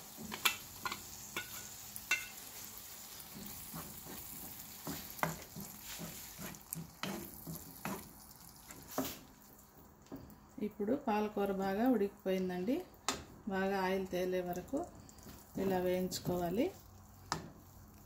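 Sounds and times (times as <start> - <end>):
pur e frying in oil: 0.0 - 18.0
wooden spatula knocking and scraping: 3.2 - 9.2, 15.3 - 17.7.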